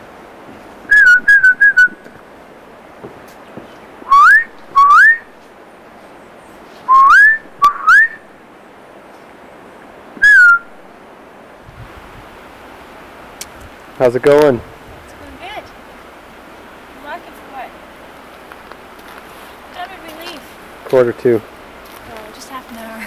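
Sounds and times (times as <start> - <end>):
parrot whistling calls: 0.9 - 2.2, 4.1 - 5.4, 6.9 - 8.3, 10.2 - 10.8.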